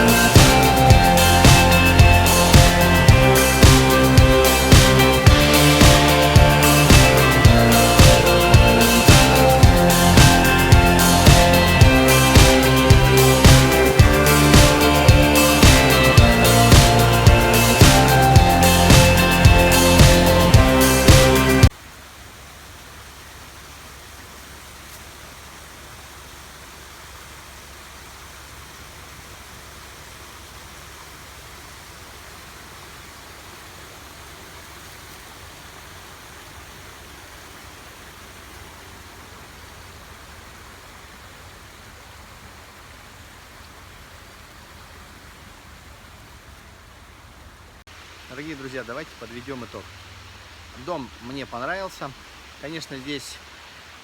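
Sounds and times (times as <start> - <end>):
background music: 0.0 - 21.7
stream water rushing: 0.0 - 54.0.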